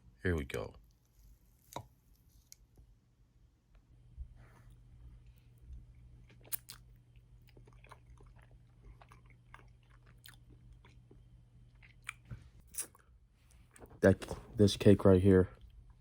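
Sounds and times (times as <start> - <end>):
person chewing cake: 4.7 - 14.4.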